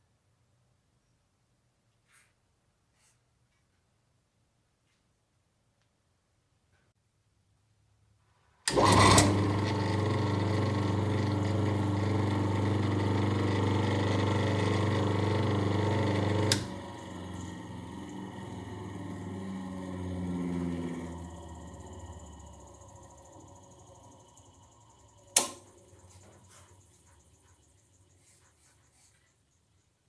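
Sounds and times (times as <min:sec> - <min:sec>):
table saw motor humming: 0:08.7 - 0:28.3
switch click: 0:25.3 - 0:26.2.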